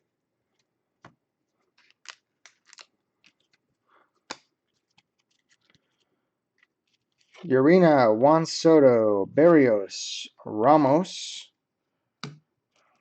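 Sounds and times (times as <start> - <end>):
trading cards being handled: 0.5 - 7.5
wrapper crinkles: 1.7 - 3.7, 4.6 - 7.5.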